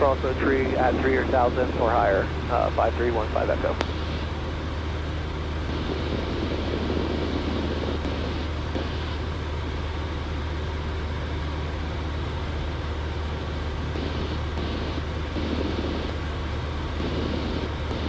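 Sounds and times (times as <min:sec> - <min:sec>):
light aircraft engine droning: 0:00.0 - 0:18.0.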